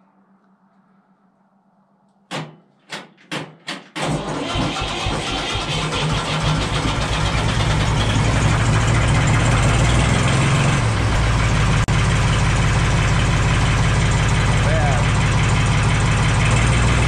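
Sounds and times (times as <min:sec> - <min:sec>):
diesel tractor engine idling: 0:04.1 - 0:17.0.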